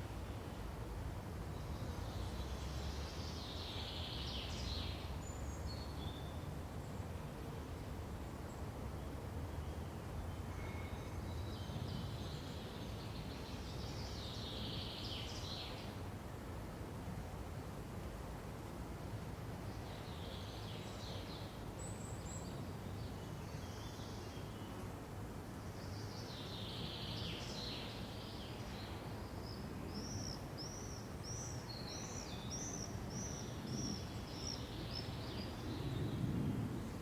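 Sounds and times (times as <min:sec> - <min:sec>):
low background noise: 0:00.0 - 0:37.0.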